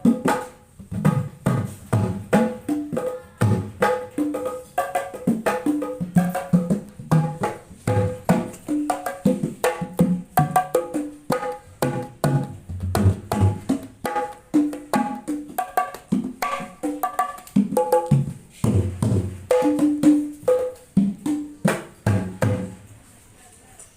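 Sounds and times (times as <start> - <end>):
hand drum thuds and slaps: 0.0 - 22.8.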